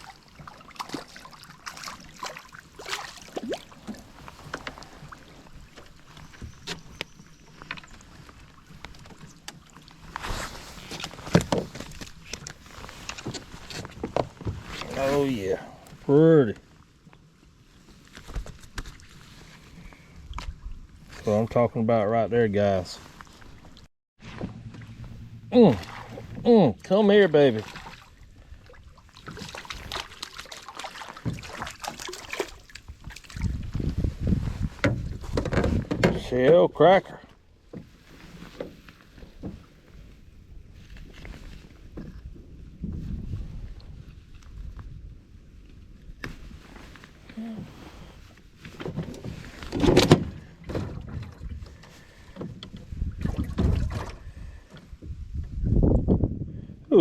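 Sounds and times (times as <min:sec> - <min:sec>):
fish splashing and knocking: 0:00.0 - 0:05.3, 0:29.2 - 0:33.6
rustling and thumps: 0:10.1 - 0:14.9, 0:32.9 - 0:36.2
low wind rumble on microphone: 0:32.8 - 0:36.2, 0:39.3 - 0:57.0
taps and knocks in boat: 0:34.8 - 0:36.3.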